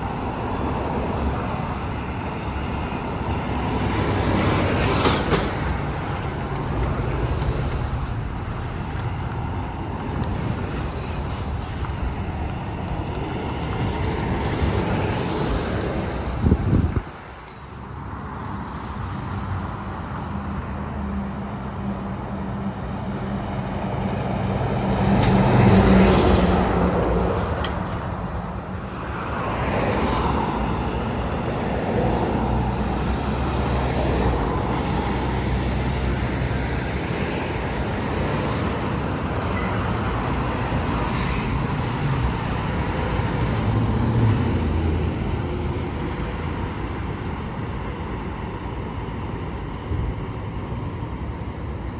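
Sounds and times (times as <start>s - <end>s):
highway traffic passing: 0.0s - 51.9s.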